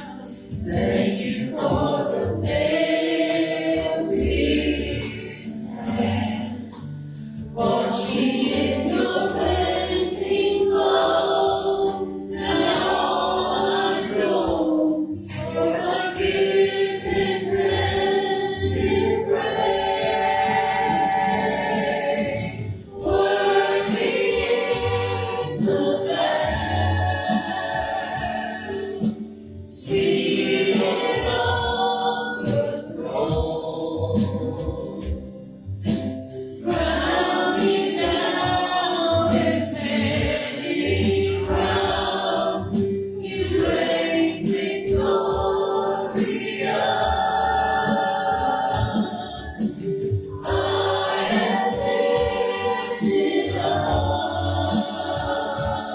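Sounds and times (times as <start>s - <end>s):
group singing worship song: 0.0s - 55.9s
instrumental accompaniment with bass: 0.0s - 55.9s.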